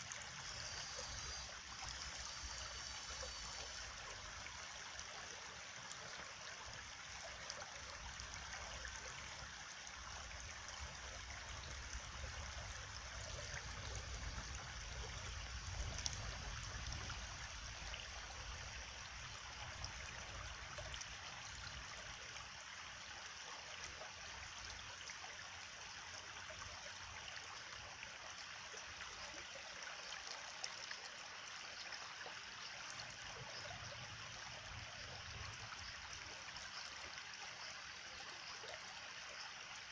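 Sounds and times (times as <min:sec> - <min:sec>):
stream water trickling: 0:00.0 - 0:39.9
faint low rumble: 0:11.3 - 0:18.7.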